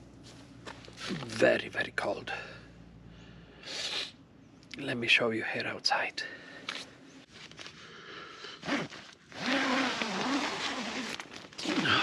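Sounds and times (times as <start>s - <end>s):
tent fabric rustling: 8.6s - 12.0s
zip being pulled: 8.6s - 12.0s.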